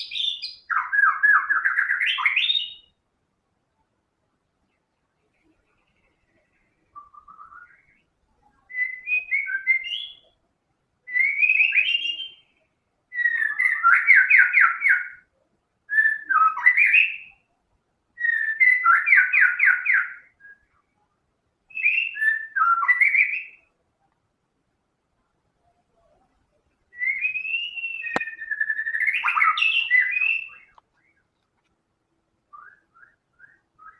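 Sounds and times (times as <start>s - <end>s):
bird singing whistled phrases: 0.0s - 3.0s, 6.9s - 10.4s, 11.1s - 15.3s, 15.9s - 17.4s, 18.2s - 20.9s, 21.7s - 23.7s, 26.9s - 31.2s, 32.5s - 33.9s.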